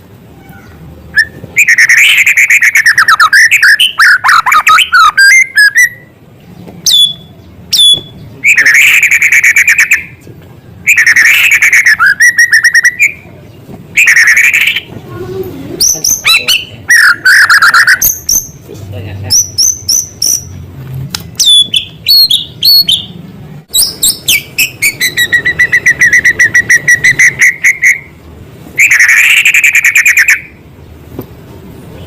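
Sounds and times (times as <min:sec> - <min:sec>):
bird singing trills and whistles: 0:00.6 - 0:06.2, 0:06.8 - 0:10.2, 0:10.8 - 0:13.3, 0:14.0 - 0:14.9, 0:15.8 - 0:18.6, 0:19.3 - 0:20.6, 0:21.4 - 0:28.2, 0:28.8 - 0:30.6.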